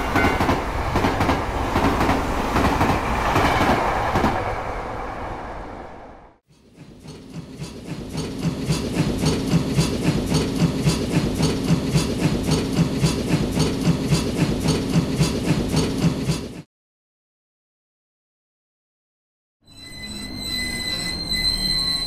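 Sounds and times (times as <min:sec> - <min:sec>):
train chugging with hiss: 0:06.6 - 0:16.6.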